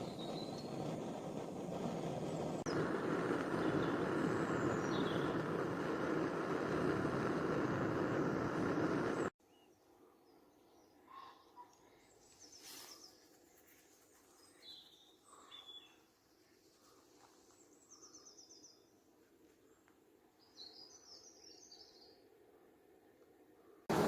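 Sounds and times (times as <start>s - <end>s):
birdsong trills and chirps: 0.0s - 1.0s, 3.6s - 5.6s, 14.3s - 16.1s
low outdoor hiss: 16.0s - 24.0s.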